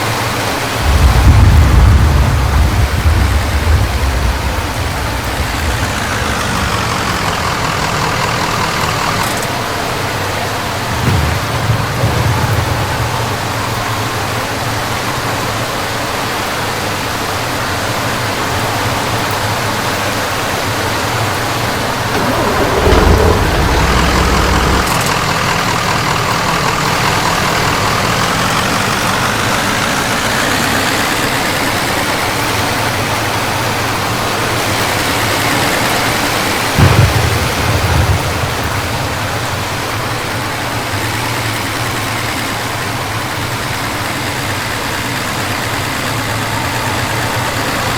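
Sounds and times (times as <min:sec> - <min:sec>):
rain on car: 0:00.0 - 0:47.9
road noise: 0:00.0 - 0:47.9
car engine accelerating: 0:00.7 - 0:14.3, 0:21.7 - 0:47.9
heavy thump: 0:00.8 - 0:09.4, 0:10.9 - 0:14.1, 0:22.1 - 0:28.8, 0:36.8 - 0:39.8
loud low rumble: 0:00.8 - 0:09.4, 0:10.6 - 0:14.4, 0:22.1 - 0:31.1, 0:36.8 - 0:40.4.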